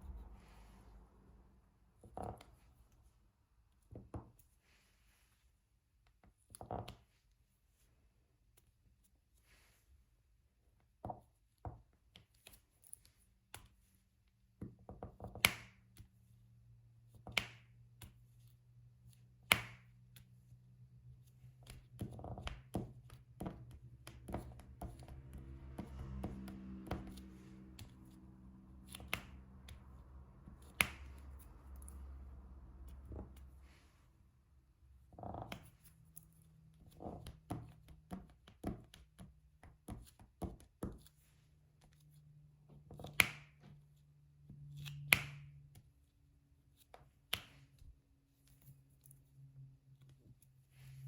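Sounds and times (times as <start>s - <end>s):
low steady hum: 0.0s - 3.8s, 16.3s - 37.9s.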